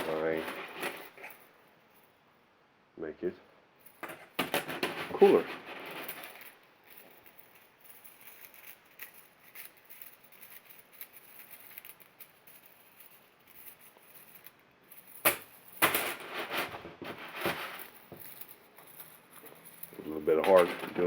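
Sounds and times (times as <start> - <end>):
plastic chainmail clicking and rattling: 0.0 - 1.5, 3.9 - 21.0.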